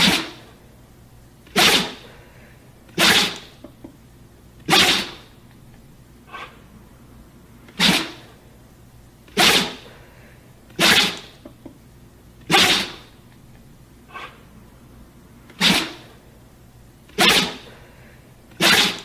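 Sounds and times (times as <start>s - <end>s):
dog sneezing: 0.0s - 0.5s, 1.5s - 2.2s, 2.9s - 3.6s, 4.7s - 5.3s, 6.3s - 6.6s, 7.7s - 8.3s, 9.3s - 10.0s, 10.7s - 11.4s, 12.5s - 13.2s, 14.1s - 14.4s, 15.5s - 16.1s, 17.1s - 17.8s, 18.5s - 19.0s.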